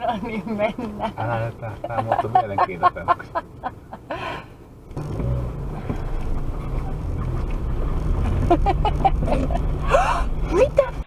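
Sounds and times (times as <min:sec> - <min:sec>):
vehicle engine rumbling: 0:00.0 - 0:11.0
voices: 0:08.5 - 0:11.0.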